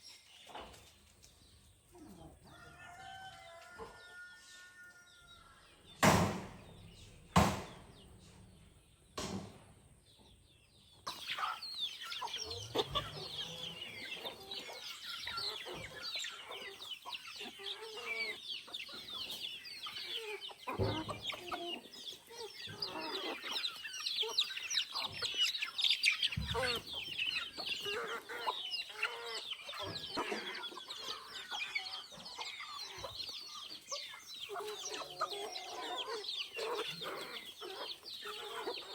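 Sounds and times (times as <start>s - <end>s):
chickens clucking: 0.0s - 38.9s
sharp knocks: 6.0s - 6.7s, 7.3s - 7.9s, 9.2s - 9.6s.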